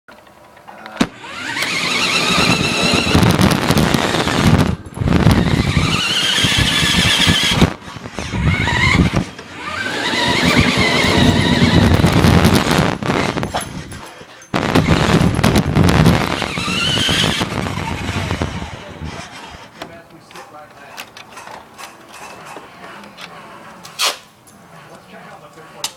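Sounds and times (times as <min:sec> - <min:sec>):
rc car motor whining: 0:01.1 - 0:13.4, 0:16.0 - 0:19.8
rumbling wheel noise: 0:01.2 - 0:19.8.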